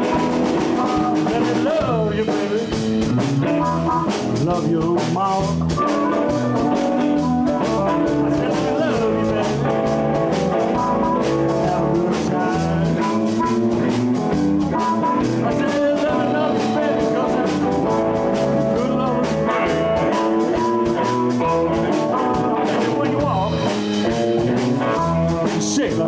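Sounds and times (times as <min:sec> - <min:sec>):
bass guitar: 0:00.0 - 0:26.0
drum kit beat: 0:00.0 - 0:26.0
electric guitars: 0:00.0 - 0:26.0.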